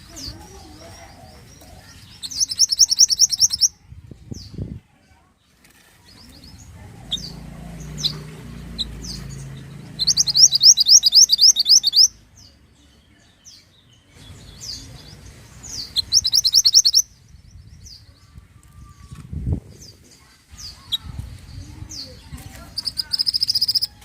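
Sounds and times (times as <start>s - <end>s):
bird chirping: 0.0s - 4.6s, 6.1s - 24.0s
bird rapid repeated notes: 8.8s - 12.1s, 16.0s - 17.0s.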